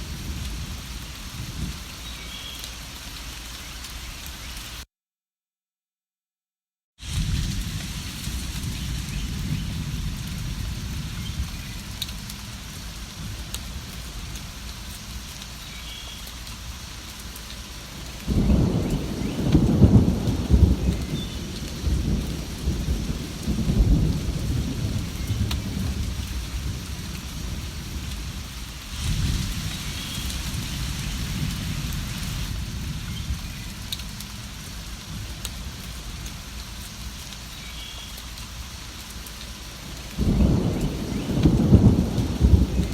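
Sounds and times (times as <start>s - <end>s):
steady rain: 0.0s - 4.9s, 7.0s - 42.9s
rolling thunder: 7.0s - 14.4s, 18.2s - 36.3s, 40.1s - 42.9s.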